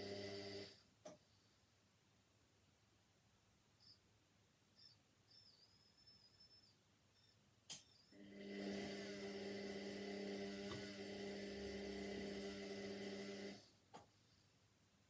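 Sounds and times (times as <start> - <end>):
washing machine electric hum: 0.0 - 0.8, 8.1 - 13.8
click: 7.7 - 7.9.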